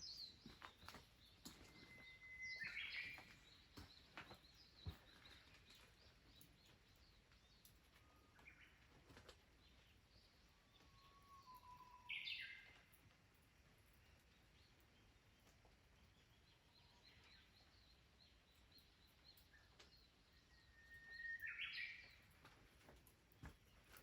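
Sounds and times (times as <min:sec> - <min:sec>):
birds chirping: 0:00.0 - 0:22.4
low drawn-out bird whistle: 0:10.9 - 0:12.7.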